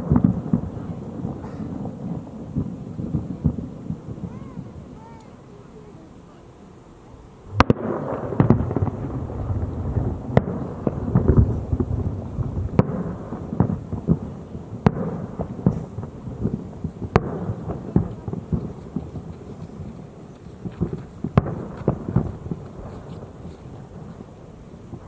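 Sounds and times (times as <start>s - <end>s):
low rumble and crackle: 7.0s - 25.0s
firework shells bursting: 7.4s - 24.3s.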